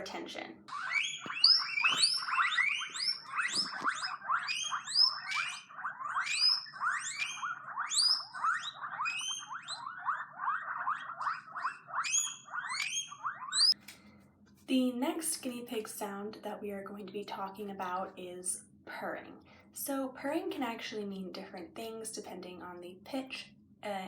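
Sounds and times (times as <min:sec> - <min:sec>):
guinea pigs squealing: 0:00.0 - 0:13.8.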